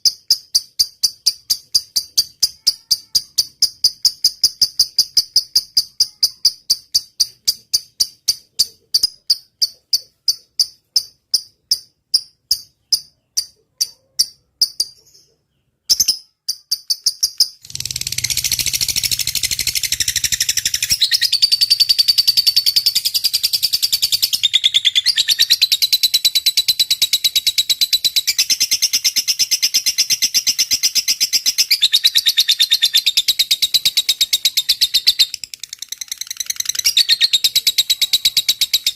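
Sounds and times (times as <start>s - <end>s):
lovebird chirping: 0.0s - 38.9s
lovebird fast chattering trill: 0.4s - 11.9s, 12.5s - 38.9s.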